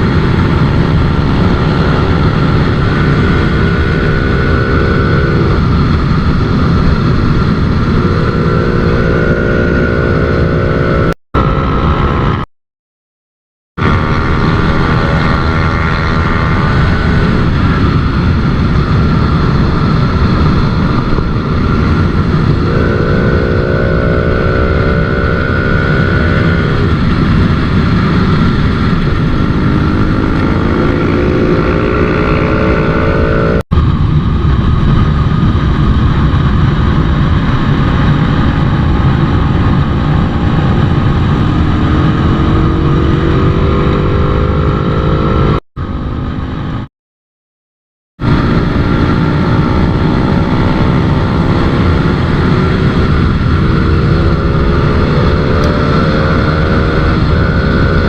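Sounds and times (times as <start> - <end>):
motorcycle engine accelerating: 0.0 - 12.5, 13.7 - 46.9, 48.2 - 58.0
wind and road noise: 0.0 - 12.5, 13.7 - 46.9, 48.2 - 58.0.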